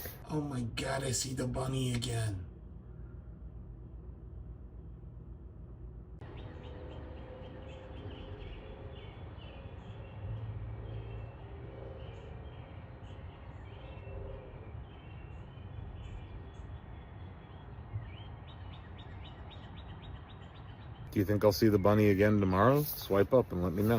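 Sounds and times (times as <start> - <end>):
low background rumble: 0.0 - 23.9
small birds chirping: 6.2 - 23.9.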